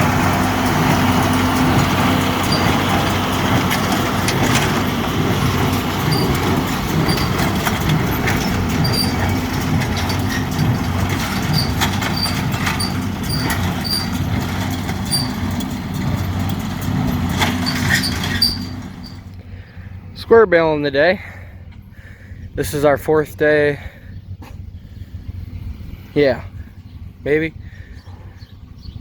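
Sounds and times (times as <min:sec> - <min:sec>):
baler clicks and knocks: 0:00.0 - 0:19.3
diesel tractor engine running: 0:00.0 - 0:29.0.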